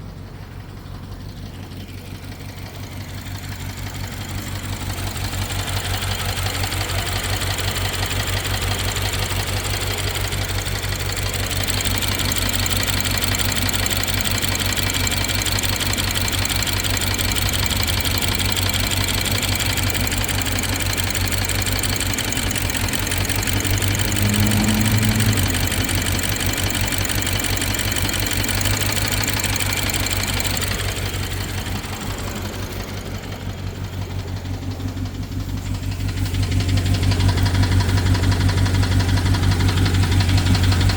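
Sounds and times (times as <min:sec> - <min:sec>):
car engine idling with ticking: 0:00.0 - 0:40.9.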